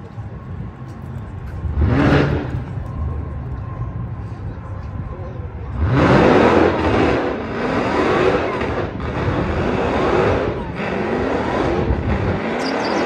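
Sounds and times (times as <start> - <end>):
car engine accelerating: 0.0 - 13.0
loud rushing noise: 5.5 - 13.0.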